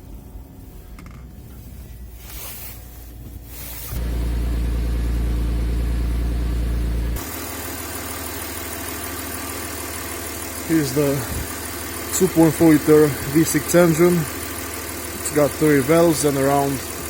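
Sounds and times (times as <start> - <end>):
car engine idling: 3.9 - 17.0.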